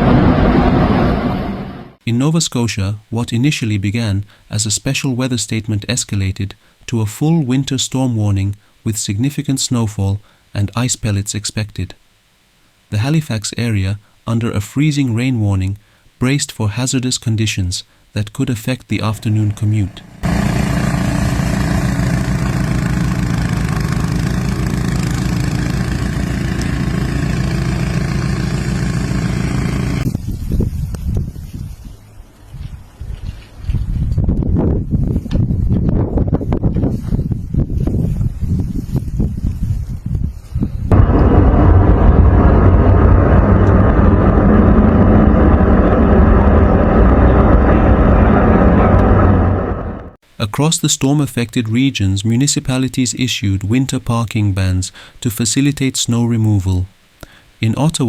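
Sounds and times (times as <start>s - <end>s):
engine running steadily: 19.2s - 30.1s, 40.9s - 50.2s.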